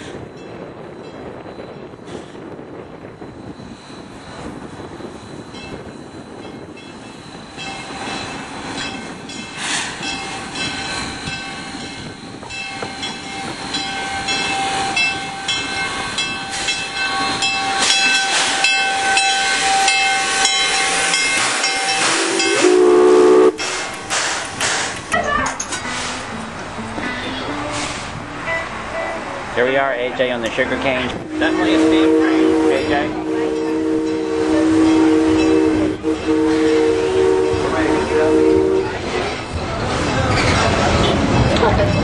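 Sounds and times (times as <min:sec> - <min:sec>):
steam locomotive chuffing: 0:01.4 - 0:28.2, 0:28.9 - 0:42.0
steam whistle: 0:16.5 - 0:23.8, 0:31.2 - 0:39.0.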